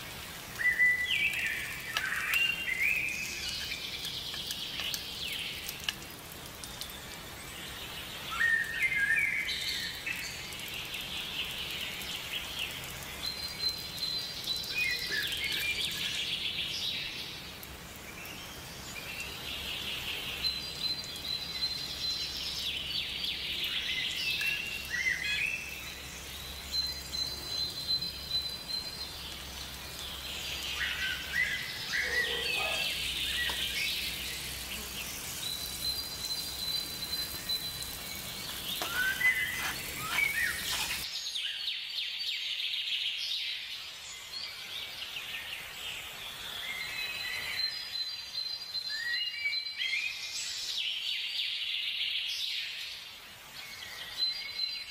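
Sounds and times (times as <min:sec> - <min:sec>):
birds chirping and singing: 0:19.0 - 0:42.5
thin high bird call: 0:30.8 - 0:41.0.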